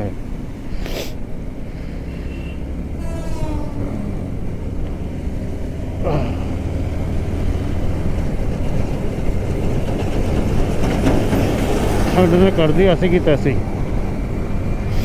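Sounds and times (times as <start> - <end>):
motorcycle engine running: 0.0 - 15.0
falling tone: 2.9 - 5.2.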